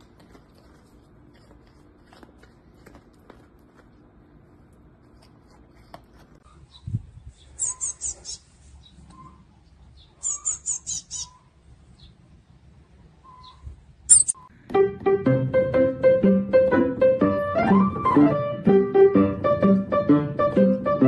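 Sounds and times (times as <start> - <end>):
songbird chirping: 6.7 - 12.3, 13.2 - 14.5.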